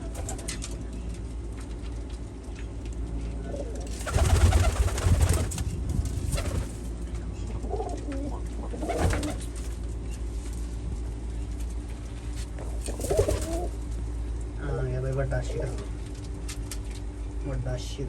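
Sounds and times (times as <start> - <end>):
steady low hum: 0.0 - 18.0
pigeons cooing: 7.5 - 9.6, 12.7 - 13.8.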